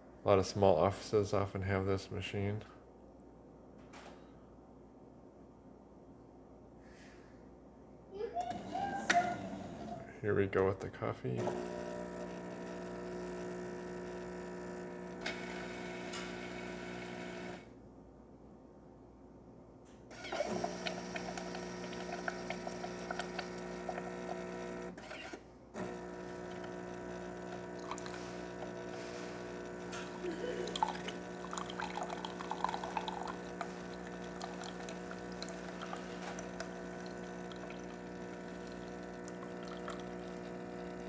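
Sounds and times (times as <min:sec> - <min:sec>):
espresso machine pump humming: 0:11.4 - 0:17.7, 0:20.1 - 0:41.0
liquid pouring: 0:20.3 - 0:24.9, 0:25.9 - 0:41.0.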